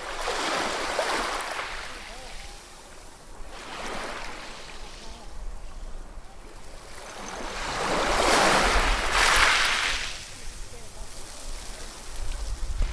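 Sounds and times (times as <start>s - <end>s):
ocean waves breaking on shore: 0.0s - 12.2s.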